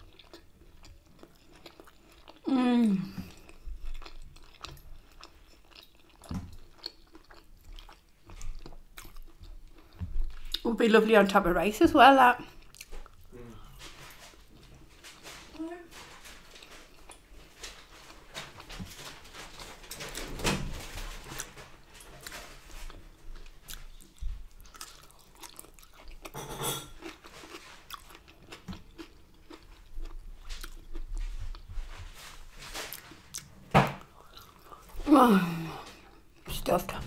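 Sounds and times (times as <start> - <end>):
person chewing and biting food: 0.0 - 2.5, 3.3 - 10.6, 12.5 - 14.2, 22.2 - 32.1, 32.8 - 35.0.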